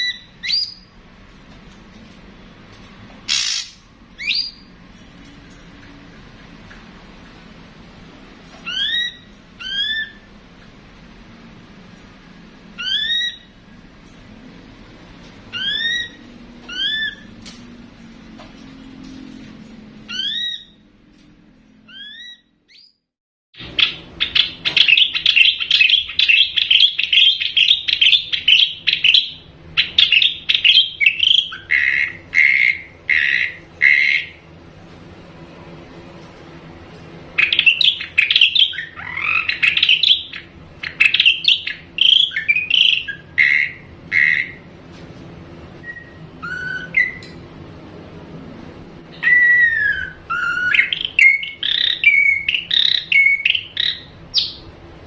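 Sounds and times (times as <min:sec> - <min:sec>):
drongo whistled calls: 0:00.0 - 0:00.9, 0:03.3 - 0:04.7, 0:08.6 - 0:10.3, 0:12.8 - 0:13.6, 0:15.5 - 0:17.3, 0:20.1 - 0:20.8, 0:21.9 - 0:23.0, 0:23.6 - 0:34.4, 0:37.4 - 0:44.7, 0:45.8 - 0:47.4, 0:49.1 - 0:54.7
drongo chattering: 0:03.3 - 0:03.8.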